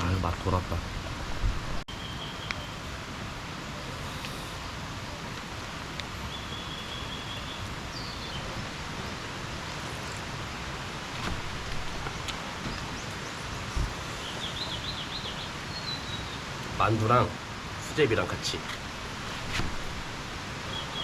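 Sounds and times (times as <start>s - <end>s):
heavy rain: 0.0s - 21.0s
rushing stream: 0.0s - 21.0s
bird whistling: 1.9s - 2.8s, 6.3s - 8.3s.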